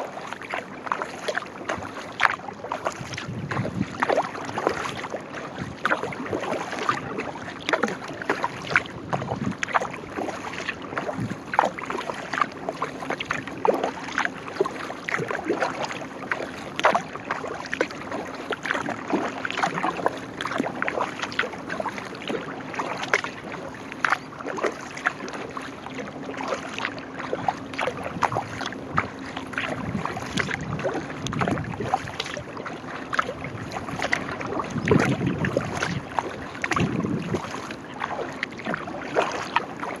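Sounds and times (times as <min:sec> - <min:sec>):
paddle splashing water: 0:00.0 - 0:40.0.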